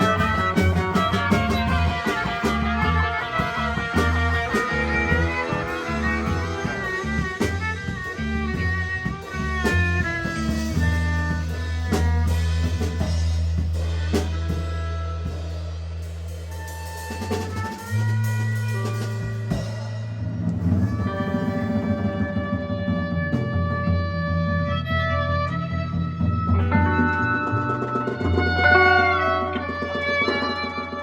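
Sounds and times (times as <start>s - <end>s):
guitar lines: 0.0s - 13.1s, 17.1s - 31.0s
drum kit hits: 0.0s - 16.0s, 26.4s - 31.0s
held low bass notes: 0.0s - 30.1s.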